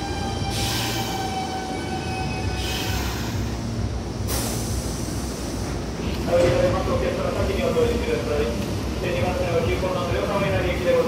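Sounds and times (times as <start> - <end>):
train rumble and whine: 0.0 - 11.0
air hiss: 0.1 - 6.4.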